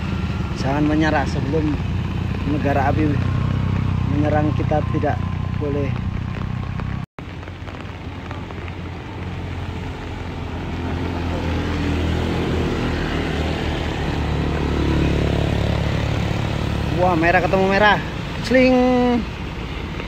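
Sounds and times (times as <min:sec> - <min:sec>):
vehicle engines droning uphill: 0:00.0 - 0:20.0.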